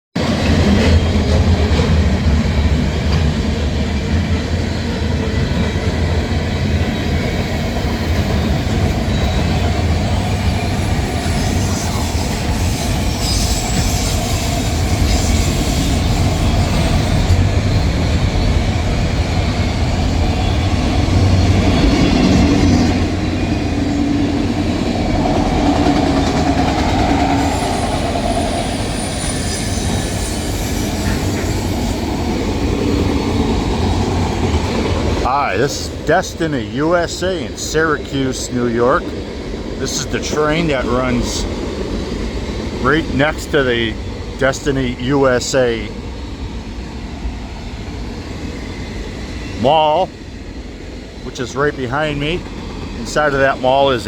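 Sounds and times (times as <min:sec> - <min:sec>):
train wheels rumbling on track: 0:00.2 - 0:54.0
faint wheel squeal: 0:10.2 - 0:17.2.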